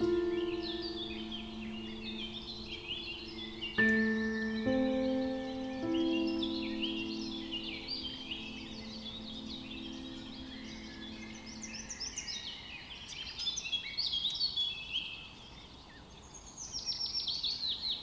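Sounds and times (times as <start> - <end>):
songbirds chirping and trilling: 0.0 - 18.0.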